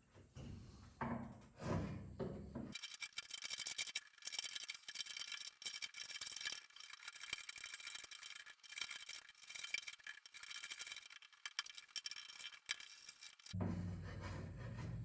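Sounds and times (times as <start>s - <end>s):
hand tools scratching thin wood: 2.8s - 13.6s.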